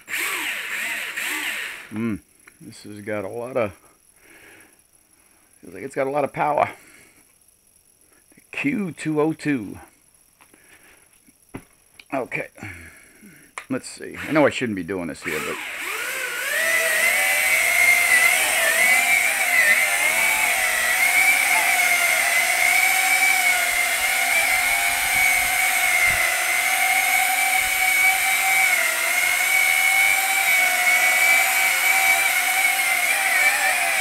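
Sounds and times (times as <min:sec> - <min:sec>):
toy drone propellers whining: 0:00.0 - 0:01.9, 0:15.2 - 0:34.0.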